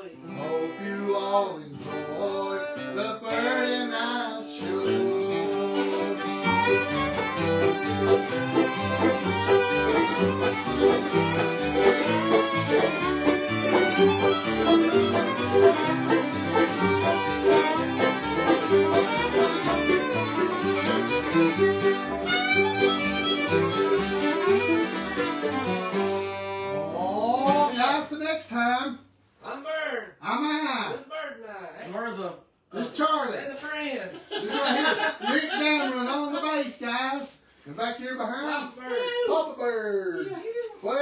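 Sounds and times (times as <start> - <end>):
strummed acoustic guitar: 1.8 - 27.8
fiddle: 4.5 - 27.7
banjo: 4.6 - 27.8.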